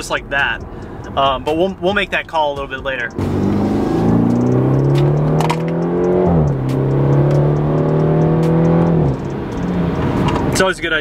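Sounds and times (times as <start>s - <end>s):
car engine accelerating: 3.1s - 10.6s.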